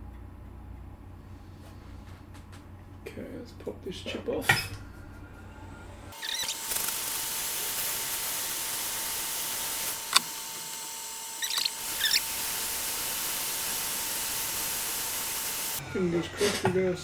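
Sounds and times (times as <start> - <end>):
hot-air rework station hissing: 4.4 - 17.0
short high squeaks: 6.2 - 7.0, 9.9 - 12.8
sharp click: 10.0 - 10.8.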